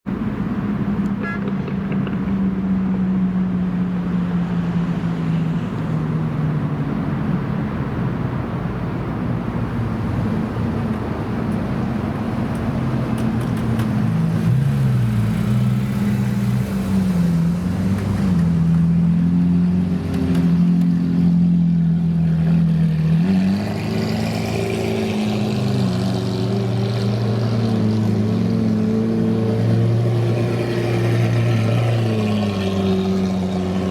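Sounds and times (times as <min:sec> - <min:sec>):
car engines idling: 0:00.1 - 0:19.1.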